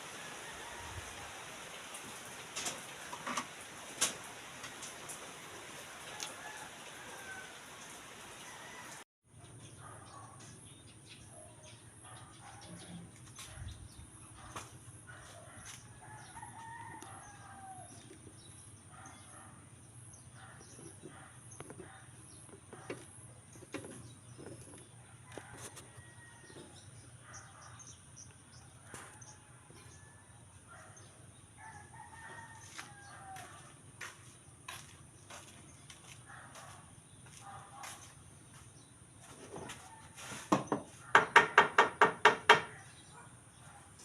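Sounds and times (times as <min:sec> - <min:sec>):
rooster crowing faintly: 0:00.1 - 0:01.6, 0:06.0 - 0:09.0, 0:31.6 - 0:33.8.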